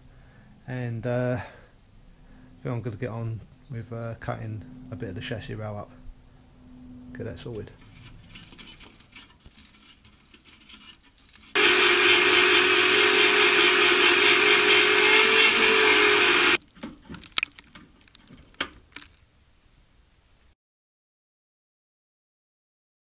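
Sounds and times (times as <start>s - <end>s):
power tool cutting steel: 11.6s - 16.6s.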